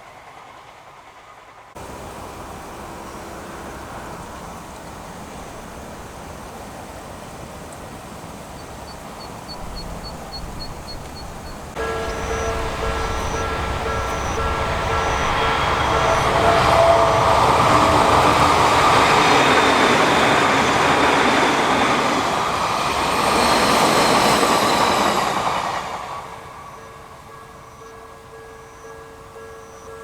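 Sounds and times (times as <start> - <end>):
electric train passing: 0.0 - 30.0
level crossing warning bell: 9.6 - 20.8, 26.2 - 30.0.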